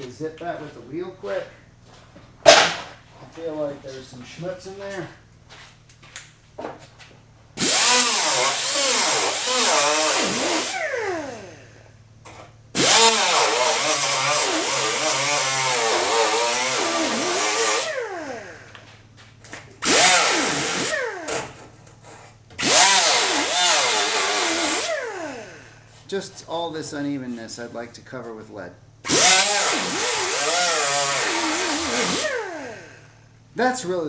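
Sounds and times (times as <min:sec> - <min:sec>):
power tool cleaning wheel on metal: 0:07.6 - 0:18.8, 0:19.6 - 0:27.9, 0:29.0 - 0:33.2.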